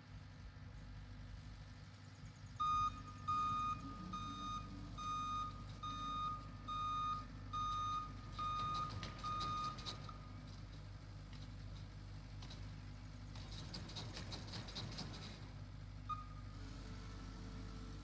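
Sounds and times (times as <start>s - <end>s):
engine humming low: 0.0s - 18.0s
backup alarm beeping: 2.6s - 9.8s.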